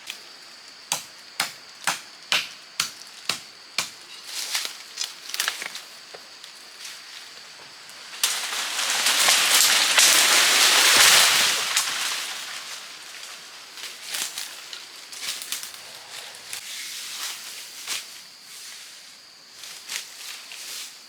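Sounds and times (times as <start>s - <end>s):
twigs snapping: 0.9s - 6.6s, 8.2s - 13.4s
leaves rustling: 1.6s - 21.0s
tree falling through branches: 3.0s - 16.6s.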